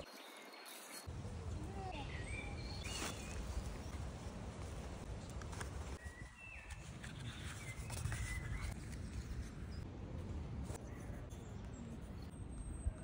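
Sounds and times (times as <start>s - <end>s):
paper rustling: 4.6s - 9.7s.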